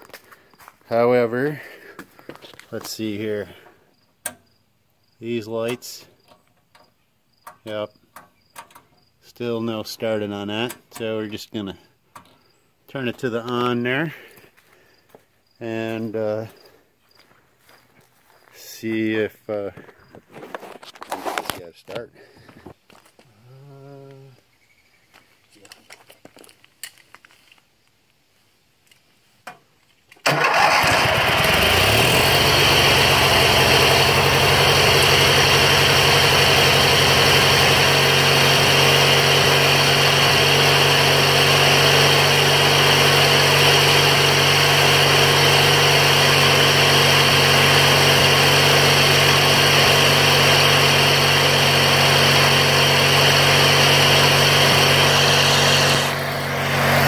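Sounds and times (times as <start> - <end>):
garden tractor engine starting: 0.9 - 4.4, 30.2 - 57.0.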